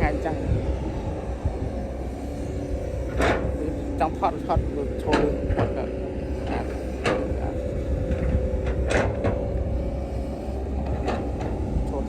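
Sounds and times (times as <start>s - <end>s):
heavy machinery engine running: 0.0s - 12.0s.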